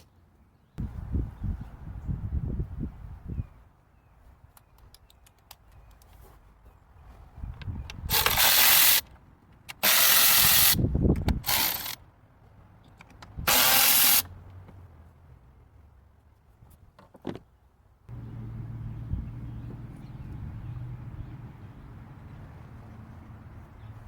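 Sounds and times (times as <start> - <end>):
clicks and handling noises: 4.5 - 6.5, 12.8 - 13.4.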